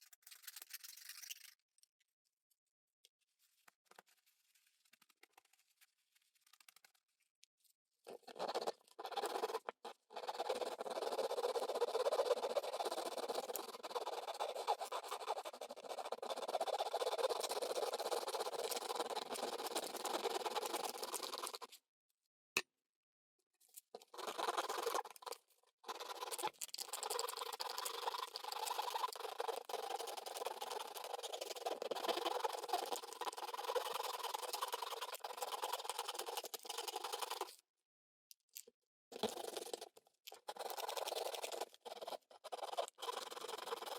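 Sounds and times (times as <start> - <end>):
hard plastic being scraped: 8.1 - 21.7, 24.0 - 37.5, 39.1 - 43.9.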